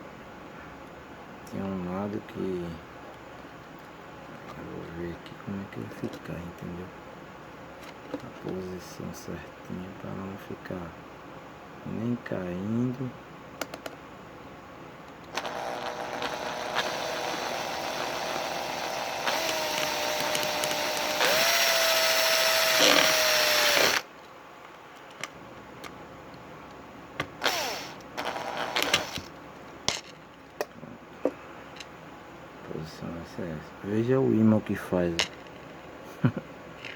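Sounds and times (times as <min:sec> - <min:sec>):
power tool motor running: 0:15.3 - 0:24.1, 0:27.4 - 0:29.3.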